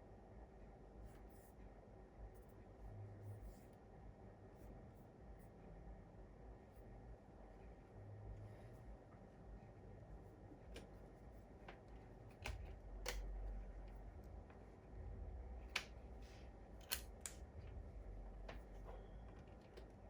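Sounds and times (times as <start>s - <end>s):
low rumble of handling: 8.2s - 20.0s.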